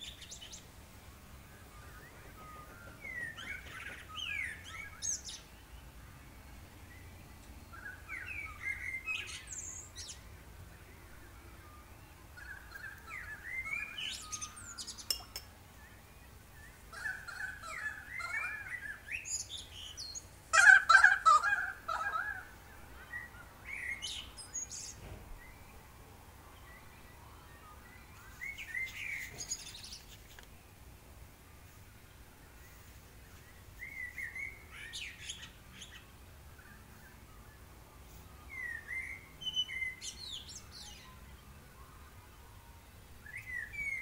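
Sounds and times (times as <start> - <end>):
birds chirping and singing: 0.0 - 30.8, 32.1 - 44.0.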